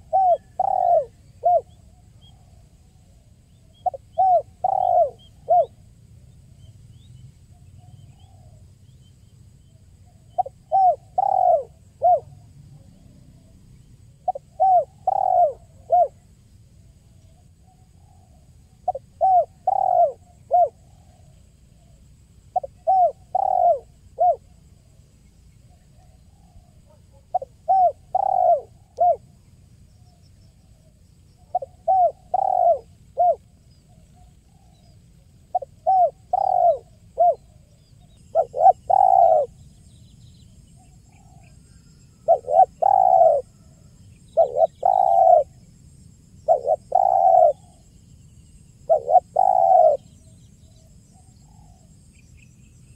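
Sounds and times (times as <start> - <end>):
dove cooing: 0.0 - 5.8, 10.1 - 24.7, 25.7 - 29.4, 30.7 - 34.9, 35.5 - 39.8, 40.8 - 45.6, 46.4 - 47.9, 48.8 - 52.0.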